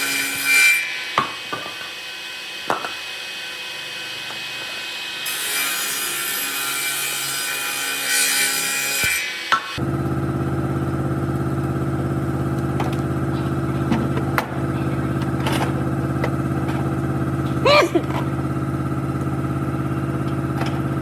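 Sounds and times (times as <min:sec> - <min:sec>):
motor humming: 0:09.8 - 0:21.0.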